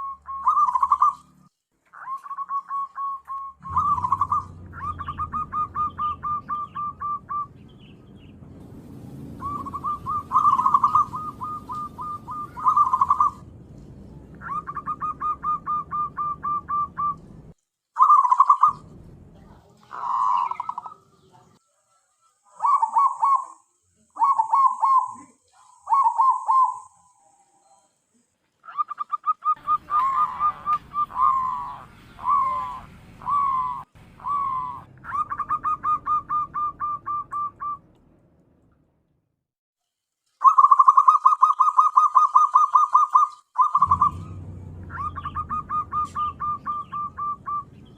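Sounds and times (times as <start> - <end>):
dove cooing: 0.0 - 7.6, 9.4 - 13.5, 14.4 - 17.3, 18.0 - 18.9, 19.5 - 21.2, 22.5 - 23.6, 24.2 - 27.0, 28.6 - 37.8, 40.4 - 47.9.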